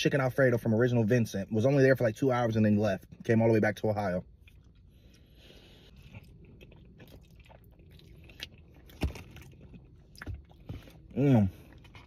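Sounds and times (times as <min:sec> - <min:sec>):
person chewing and crunching food: 0:04.1 - 0:12.0.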